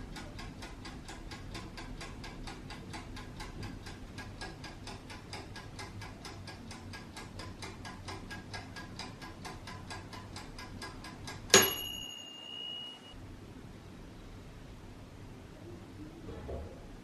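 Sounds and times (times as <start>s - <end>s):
kitchen timer ticking: 0.0s - 13.2s
timer bell ding: 11.5s - 13.2s.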